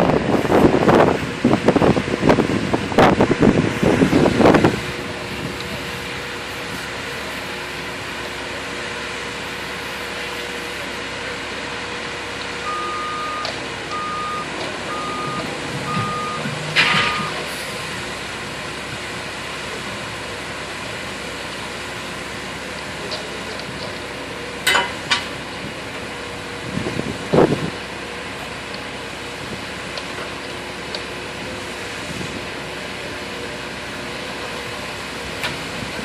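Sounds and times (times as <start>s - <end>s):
concrete mixer truck running: 0.0s - 36.0s
reversing alarm beeps: 12.6s - 17.4s.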